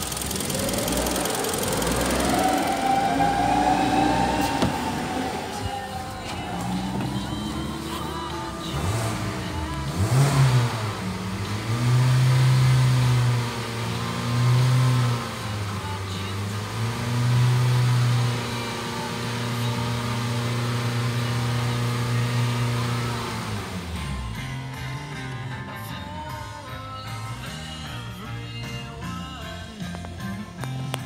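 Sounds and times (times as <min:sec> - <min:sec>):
car engine revving: 0:00.0 - 0:27.9.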